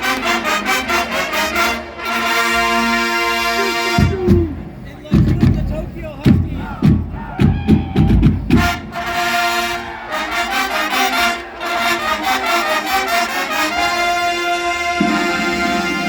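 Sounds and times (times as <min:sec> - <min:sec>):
brass sustained chords: 0:00.0 - 0:04.8, 0:08.6 - 0:16.0
heavy drum hits: 0:04.0 - 0:09.0.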